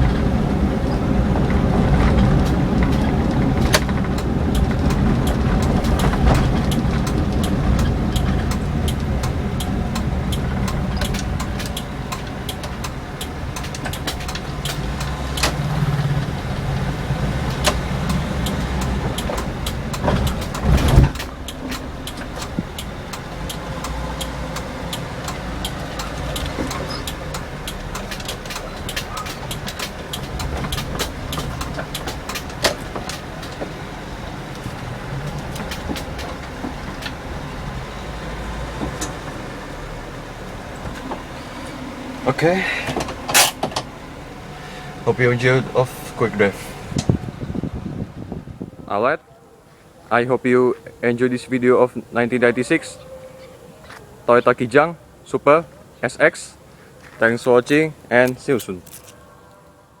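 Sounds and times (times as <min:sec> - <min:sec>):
car engine running: 0:00.0 - 0:48.8
road noise: 0:00.0 - 1:00.0
clicks and knocks: 0:01.4 - 0:37.9.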